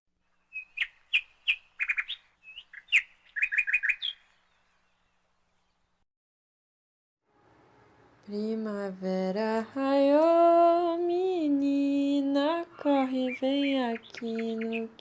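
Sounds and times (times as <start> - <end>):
songbird chirping: 0.3 - 6.0, 9.6 - 15.0.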